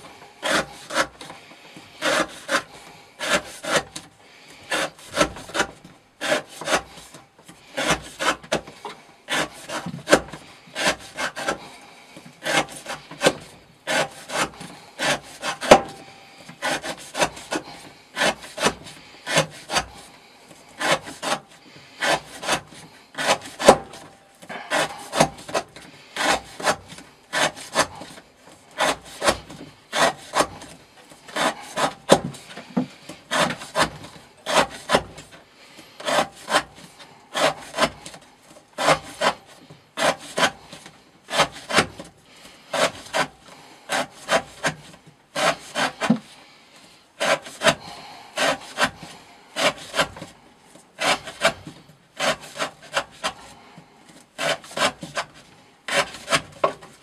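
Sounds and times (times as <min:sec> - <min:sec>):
knife slicing through rope: 0:04.7 - 0:07.2, 0:20.8 - 0:28.2, 0:28.8 - 0:35.4, 0:36.0 - 0:38.2, 0:38.8 - 0:40.7, 0:43.9 - 0:46.3, 0:47.2 - 0:47.8, 0:51.0 - 0:53.5, 0:54.4 - 0:56.8.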